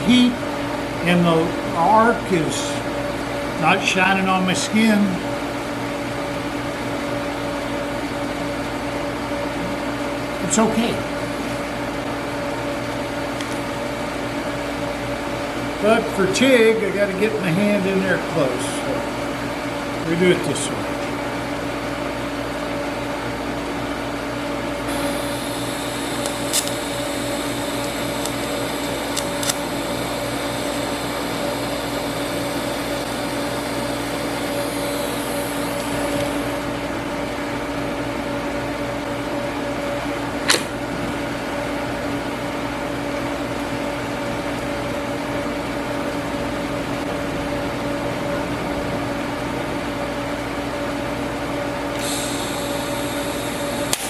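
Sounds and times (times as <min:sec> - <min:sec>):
steady machine hum: 0:00.0 - 0:54.0
welding arc hissing: 0:24.9 - 0:36.7, 0:51.9 - 0:54.0
sharp clicks: 0:27.8 - 0:29.6.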